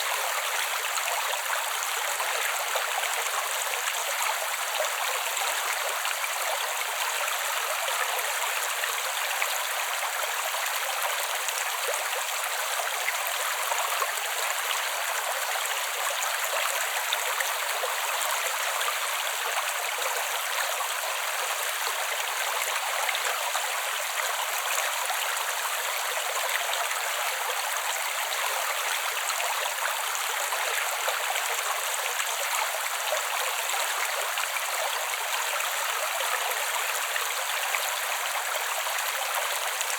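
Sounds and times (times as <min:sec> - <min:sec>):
creek flowing: 0:00.0 - 0:39.9.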